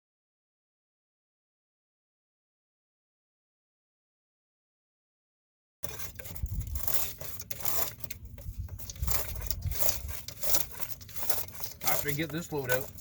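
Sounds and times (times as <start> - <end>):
tool scraping debris in pipe: 5.8 - 13.0.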